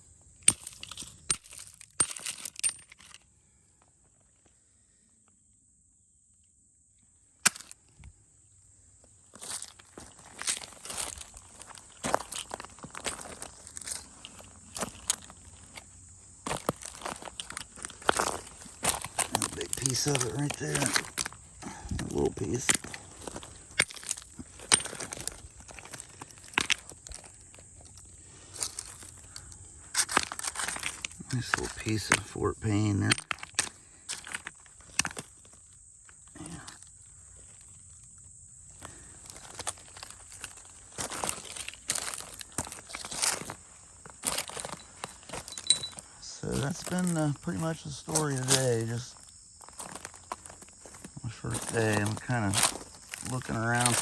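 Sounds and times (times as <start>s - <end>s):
stones clicking on gravel: 0.4s - 3.2s, 9.4s - 28.0s, 28.6s - 32.3s, 33.0s - 35.6s, 39.3s - 47.4s, 48.1s - 54.0s.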